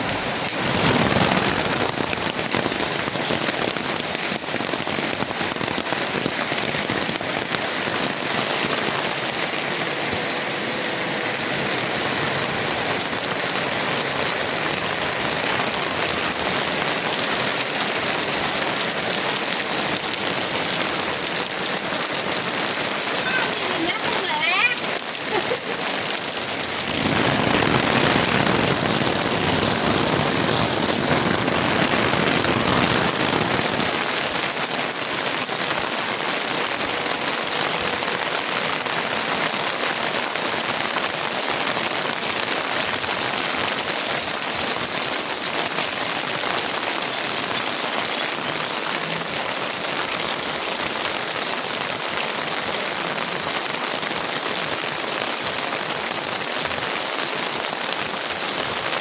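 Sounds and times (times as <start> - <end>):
heavy rain pattering: 0.0 - 59.0.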